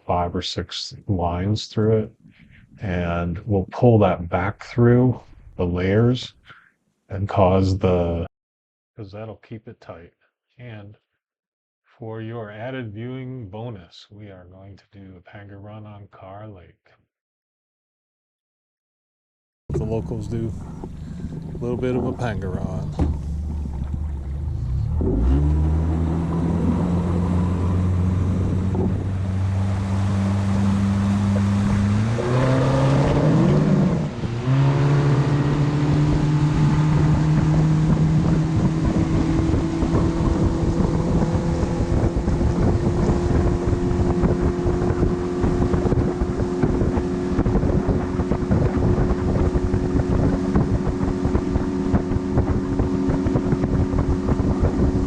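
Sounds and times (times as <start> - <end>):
boat motor revving: 19.7 - 55.0
wind buffeting microphone: 19.7 - 55.0.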